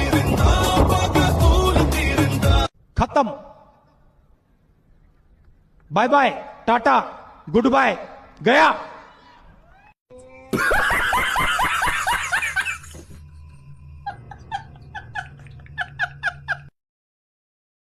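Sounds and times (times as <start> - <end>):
higher laughing bursts: 10.5 - 13.0
person laughing: 10.5 - 13.2, 14.0 - 16.7.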